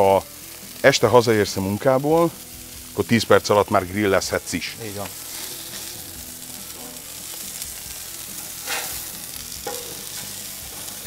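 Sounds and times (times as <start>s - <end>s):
liver sizzling on griddle: 0.0s - 11.0s
metal spatula scraping: 8.4s - 11.0s.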